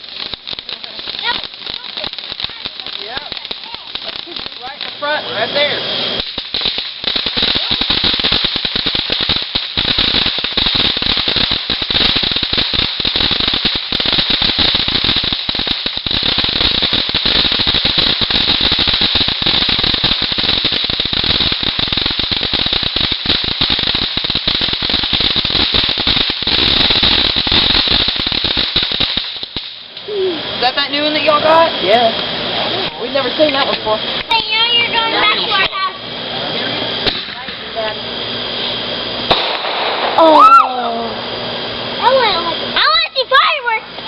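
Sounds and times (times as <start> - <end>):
fireworks crackling: 0.0 - 44.0.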